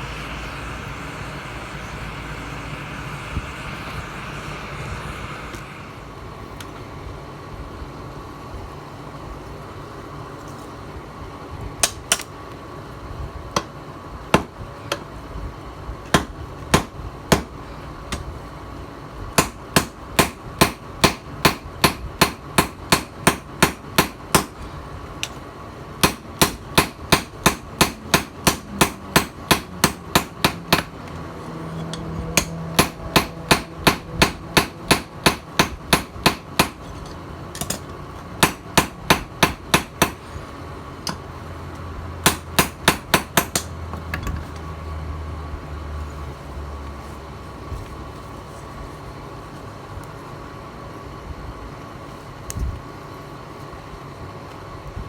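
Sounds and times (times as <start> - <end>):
steady hum: 0.0 - 55.0
hammer striking steel: 19.4 - 24.6, 26.0 - 30.9, 31.9 - 36.8, 38.4 - 40.3, 42.2 - 43.7.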